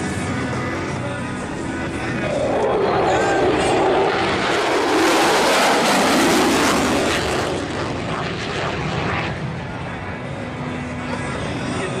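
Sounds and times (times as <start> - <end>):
airplane flying past: 0.0 - 12.0.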